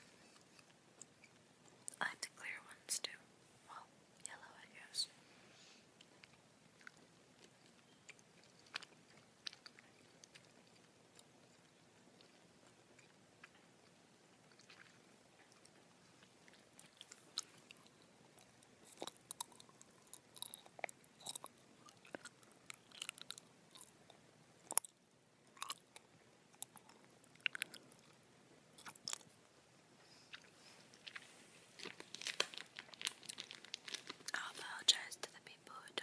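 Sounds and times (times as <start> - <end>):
chewing with wet mouth clicks: 6.0 - 29.4.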